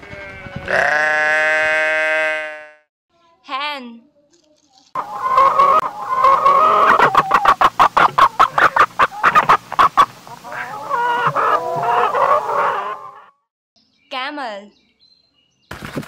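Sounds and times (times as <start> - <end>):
chickens clucking: 5.0 - 13.4.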